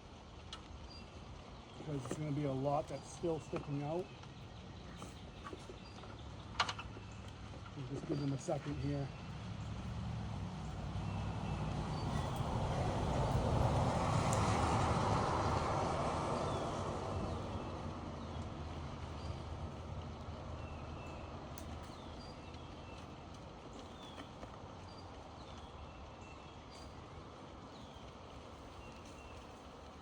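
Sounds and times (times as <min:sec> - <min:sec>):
small birds chirping: 0:00.5 - 0:30.0
passing vehicle: 0:07.1 - 0:28.0.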